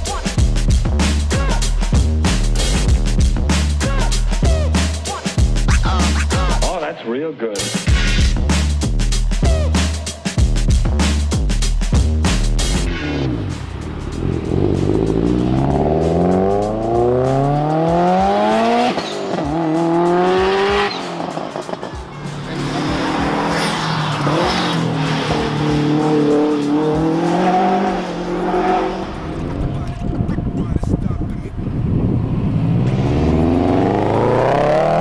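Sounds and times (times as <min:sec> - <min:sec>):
electronic music: 0:00.0 - 0:07.0, 0:07.7 - 0:31.7
car engine accelerating hard: 0:12.9 - 0:30.5, 0:31.6 - 0:35.0.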